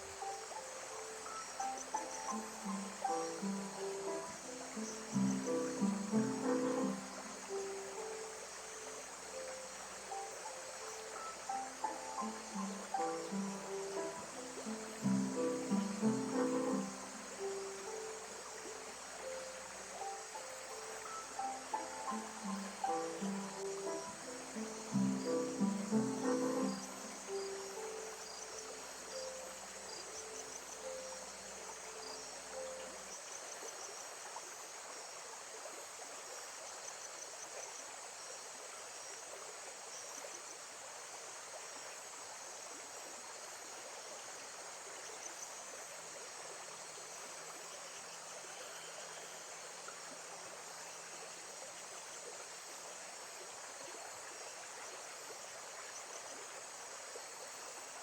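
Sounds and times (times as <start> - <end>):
soft guitar music: 0.0 - 8.3, 10.1 - 28.2
crickets chirping: 0.0 - 58.0
running water: 0.0 - 58.0.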